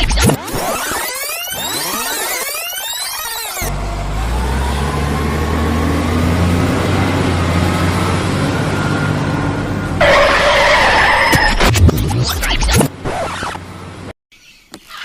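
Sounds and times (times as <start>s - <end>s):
heavy vehicle engine droning: 3.6s - 11.5s, 12.9s - 14.1s.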